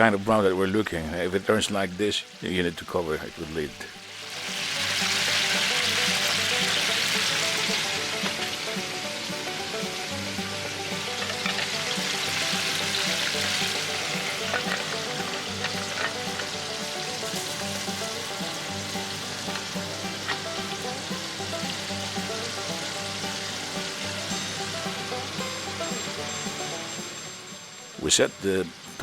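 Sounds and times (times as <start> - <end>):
chicken deep-frying in oil: 1.1 - 29.0.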